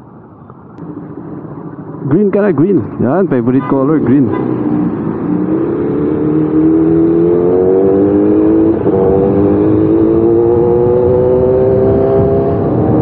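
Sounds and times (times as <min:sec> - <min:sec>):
motorcycle engine accelerating: 0:03.9 - 0:13.0.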